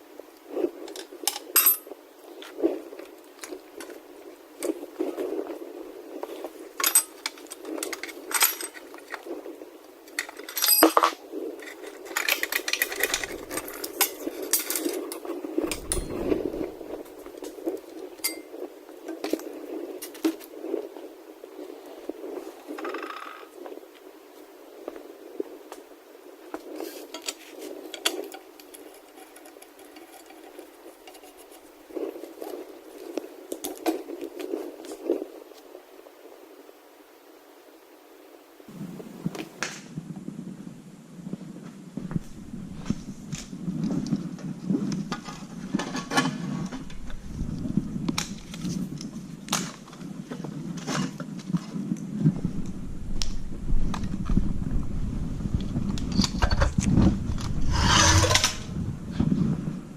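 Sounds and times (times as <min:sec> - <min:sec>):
scraping and handling noise: 0:00.3 - 0:35.8, 0:42.0 - 0:52.8, 0:55.8 - 0:59.8
metal tools clinking: 0:01.3 - 0:01.9, 0:06.8 - 0:09.0, 0:10.1 - 0:16.7, 0:18.2 - 0:18.6.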